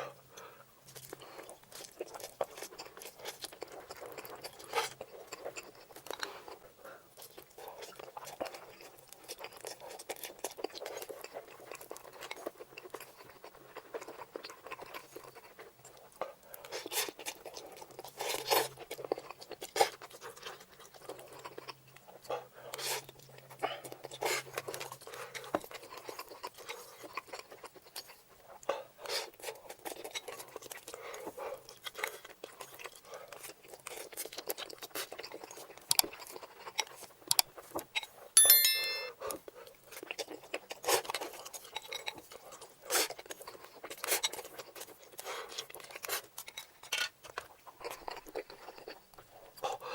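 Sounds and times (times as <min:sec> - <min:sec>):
chewing and slurping noodles: 0:00.0 - 0:38.3, 0:39.2 - 0:49.9
bright ringing clink: 0:38.4 - 0:39.1.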